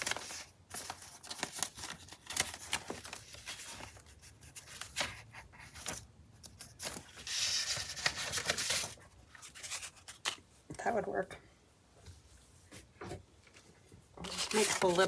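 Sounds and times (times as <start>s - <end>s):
paper rustling and crinkling: 0.0s - 10.5s, 14.2s - 15.0s.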